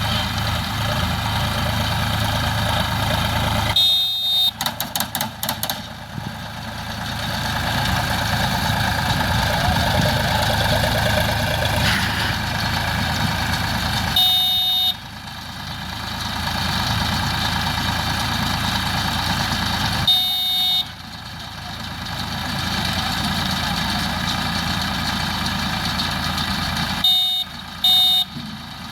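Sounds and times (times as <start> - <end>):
tractor engine running: 0.0 - 28.9
short high electronic beep: 3.8 - 4.5.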